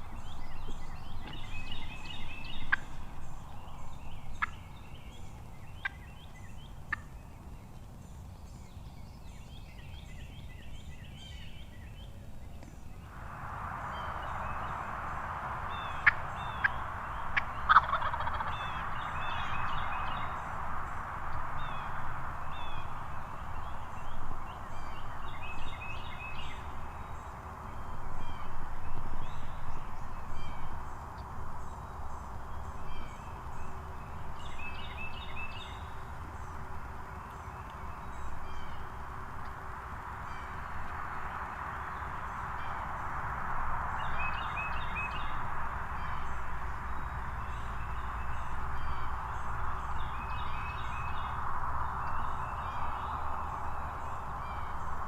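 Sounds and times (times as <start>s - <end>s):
steady rushing noise: 13.0s - 55.0s
turkeys gobbling and yelping: 16.0s - 16.7s, 17.3s - 19.8s.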